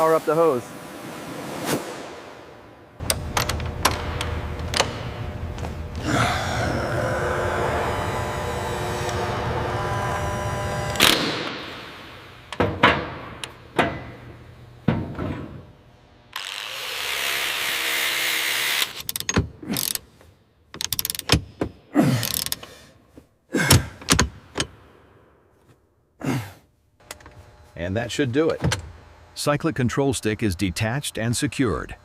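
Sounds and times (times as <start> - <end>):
steady hum: 0.0 - 16.4, 27.0 - 32.0.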